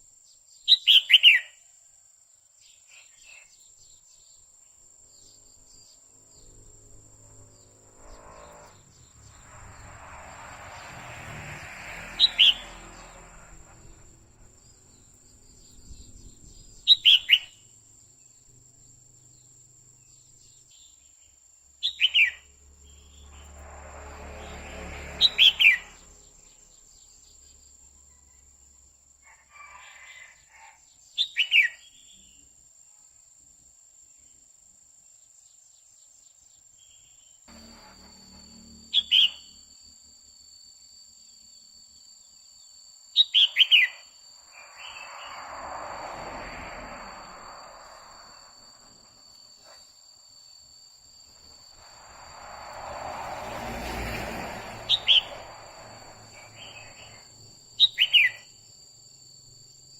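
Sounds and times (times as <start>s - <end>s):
bird whistled call notes: 16.9s - 17.6s, 43.2s - 45.4s, 54.8s - 55.5s, 56.3s - 58.6s
faint high-pitched whine: 36.8s - 59.9s.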